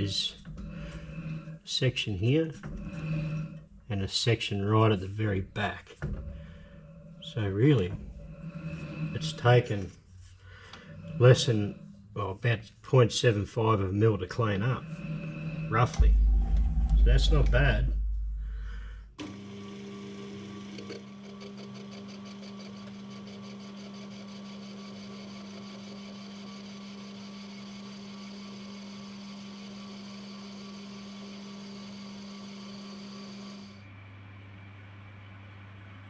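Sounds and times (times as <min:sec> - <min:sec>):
metal lathe humming and whining: 0:00.0 - 0:03.7, 0:06.6 - 0:12.5, 0:13.8 - 0:16.2, 0:19.2 - 0:33.9.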